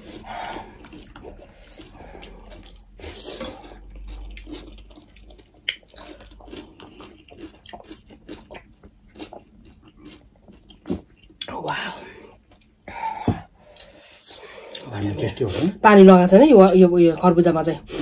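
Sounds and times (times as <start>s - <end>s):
chewing and lip-smacking: 0.0s - 11.5s.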